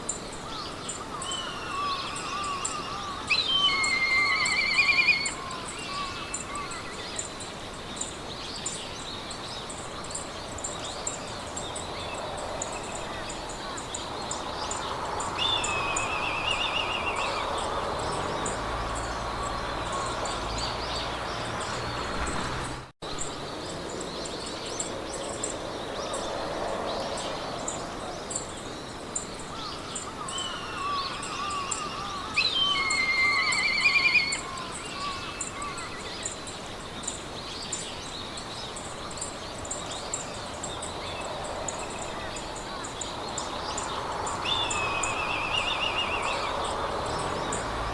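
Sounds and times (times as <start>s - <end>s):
birds singing: 0.0s - 47.9s
wind through grass: 0.0s - 47.9s.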